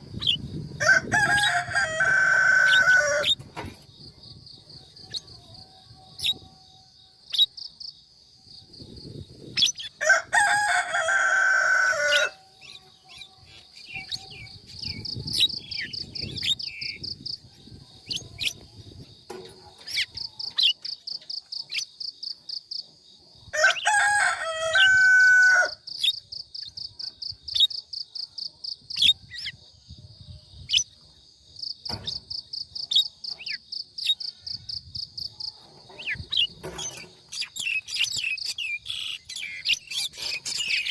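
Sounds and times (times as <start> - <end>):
loud bird calls: 35.9 - 40.9.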